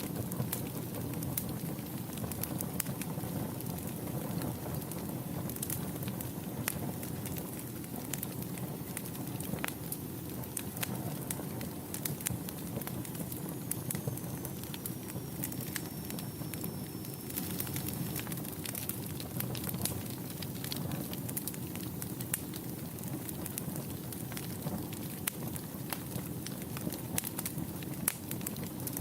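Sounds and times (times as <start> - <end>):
fire crackling and popping: 0.0 - 29.0
faint high whistle: 13.7 - 18.3.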